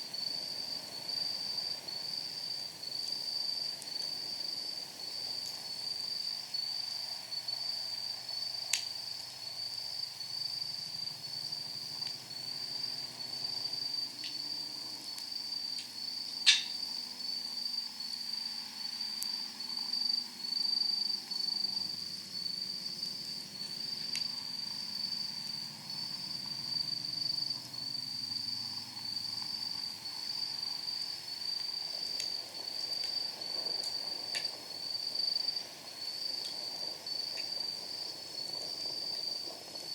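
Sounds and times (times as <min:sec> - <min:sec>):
insect chirping: 0:00.0 - 0:39.9
wood fire crackling: 0:01.8 - 0:07.2, 0:08.5 - 0:09.5, 0:11.6 - 0:16.8, 0:23.2 - 0:25.1, 0:29.6 - 0:39.8.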